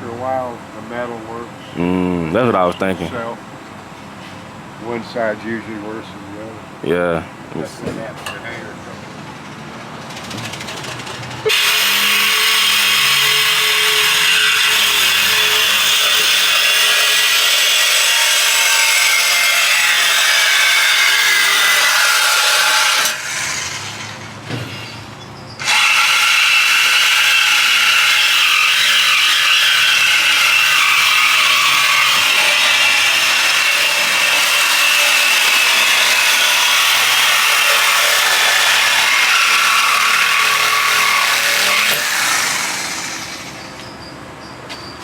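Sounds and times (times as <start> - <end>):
power saw cutting pipe: 10.1 - 24.9, 25.6 - 43.9.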